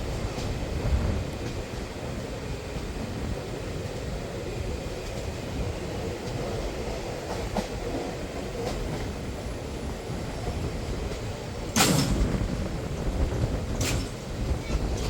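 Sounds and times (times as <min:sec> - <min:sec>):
train rumbling past: 0:00.0 - 0:15.0
wheels clicking over rail joints: 0:04.6 - 0:09.5, 0:10.3 - 0:15.0.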